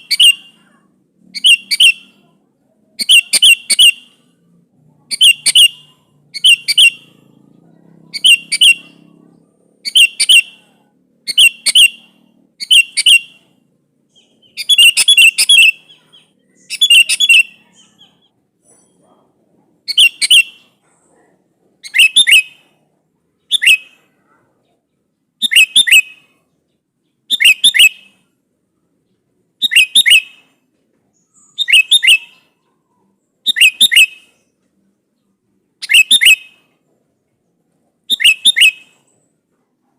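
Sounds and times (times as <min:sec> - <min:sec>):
bird calling: 0:00.0 - 0:21.1, 0:21.8 - 0:22.8, 0:23.4 - 0:24.8, 0:25.4 - 0:26.5, 0:27.2 - 0:28.3, 0:29.0 - 0:34.6, 0:35.2 - 0:36.8, 0:38.0 - 0:39.2.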